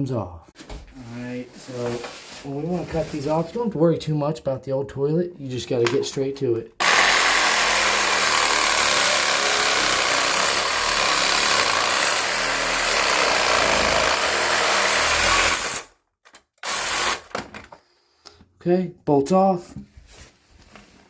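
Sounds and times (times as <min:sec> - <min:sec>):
power tool cutting metal bolts: 0:06.8 - 0:16.0, 0:16.6 - 0:17.5.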